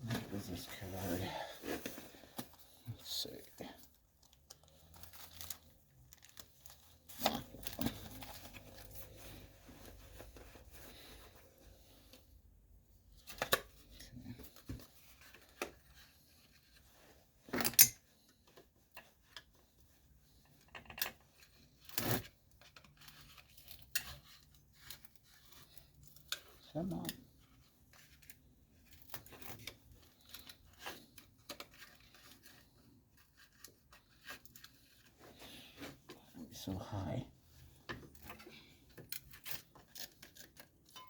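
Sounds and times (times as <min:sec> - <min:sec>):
metal parts and tools clinking: 0:17.6 - 0:18.0.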